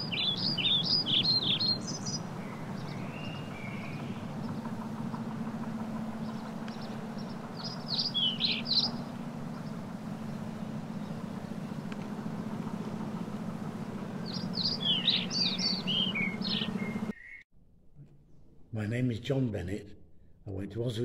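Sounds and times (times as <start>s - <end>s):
small bird chirping: 0.0s - 5.4s, 6.1s - 12.5s, 13.8s - 17.4s
steady low hum: 0.0s - 18.8s.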